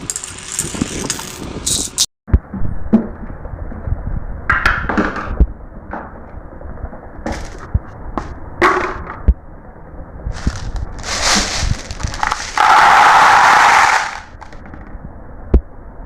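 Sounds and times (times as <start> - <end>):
marbles rolling on a track: 0.0 - 1.4, 10.4 - 14.6
marbles clacking: 10.4 - 14.6.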